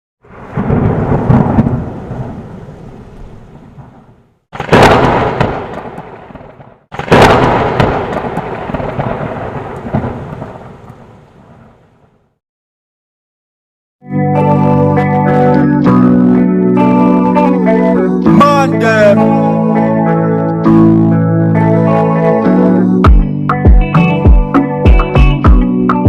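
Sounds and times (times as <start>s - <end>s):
thunder claps rolling: 0.2s - 12.1s.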